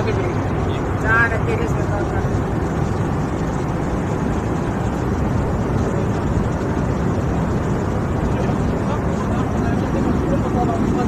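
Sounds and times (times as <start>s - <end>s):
airliner cabin engine and airflow rush: 0.0s - 11.0s.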